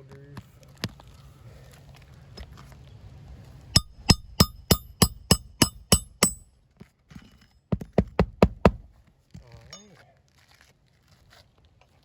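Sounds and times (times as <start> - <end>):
hammer striking roofing nails: 3.8 - 6.4, 7.8 - 9.0.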